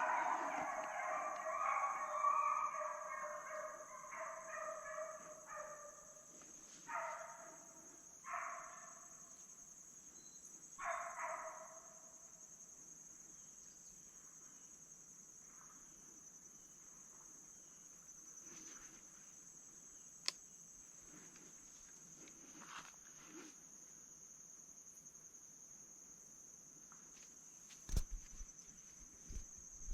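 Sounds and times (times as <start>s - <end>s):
hounds baying: 0.0s - 6.0s
crickets trilling: 0.0s - 29.9s.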